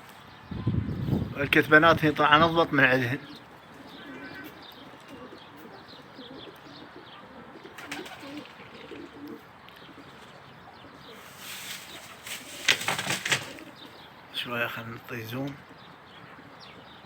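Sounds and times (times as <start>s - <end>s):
pigeons cooing: 0.6s - 14.4s, 15.2s - 17.0s
loud rustling bursts: 11.1s - 14.0s.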